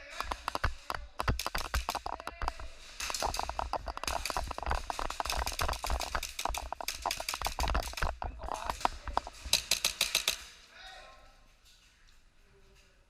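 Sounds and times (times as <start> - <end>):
pellets striking walls: 0.0 - 10.4
airsoft guns firing: 8.7 - 10.5.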